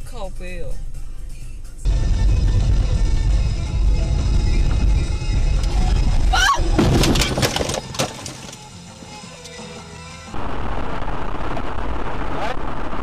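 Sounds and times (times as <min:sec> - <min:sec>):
car road noise: 0:00.0 - 0:09.8
music: 0:00.0 - 0:10.4
crashing impacts: 0:01.9 - 0:08.8
tire squeal: 0:05.7 - 0:07.3.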